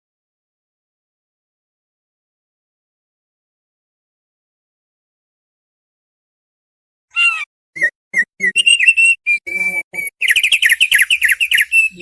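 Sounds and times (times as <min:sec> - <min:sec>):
bird singing whistled trill: 0:07.2 - 0:12.0.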